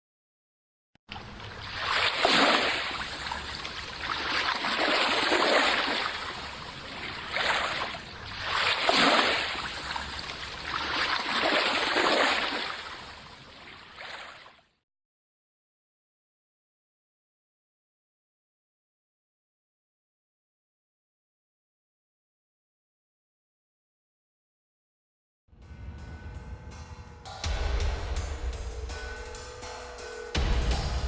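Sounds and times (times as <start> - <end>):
water rushing and splashing: 1.1 - 14.5.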